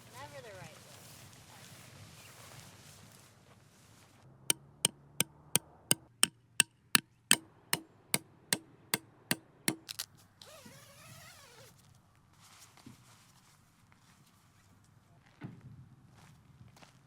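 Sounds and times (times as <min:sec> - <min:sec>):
hammering tent stakes: 0:05.9 - 0:06.3, 0:07.3 - 0:07.9, 0:09.7 - 0:10.0.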